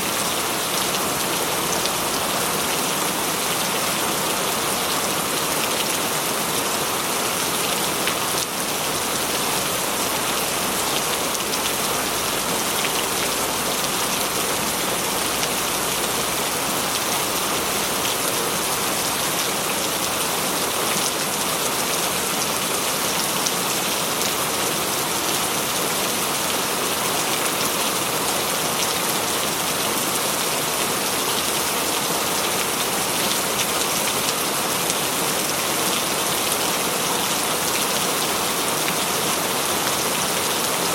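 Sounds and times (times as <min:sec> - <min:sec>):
heavy rain on metal roof: 0:00.0 - 0:40.9.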